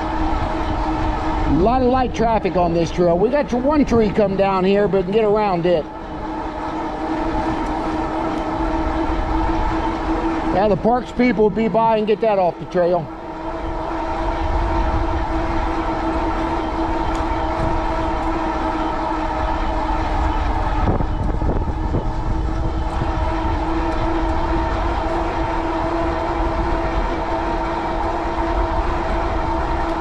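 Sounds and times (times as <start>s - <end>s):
wind rumble on microphone: 0.0s - 4.2s, 13.3s - 30.0s
electric bike motor whine: 0.0s - 30.0s.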